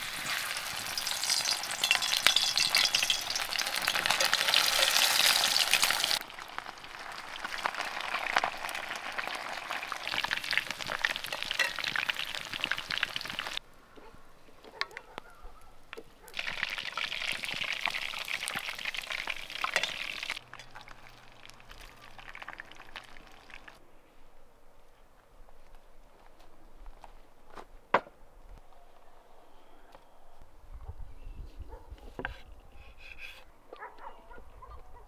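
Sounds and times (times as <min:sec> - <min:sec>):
food sizzling in a pan: 0:00.0 - 0:13.6, 0:16.4 - 0:23.8.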